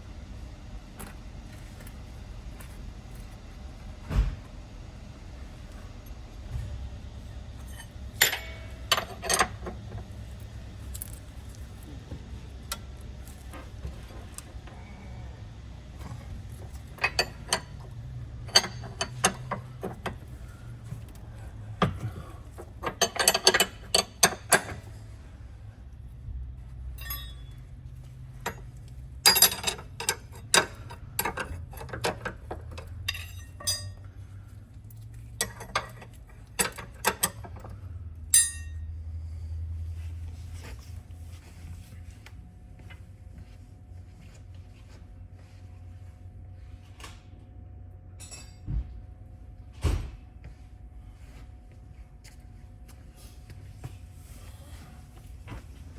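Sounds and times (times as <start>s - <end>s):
steady low hum: 0.0s - 55.9s
metal hand tools clinking: 27.0s - 27.6s, 29.2s - 32.3s, 33.1s - 34.0s.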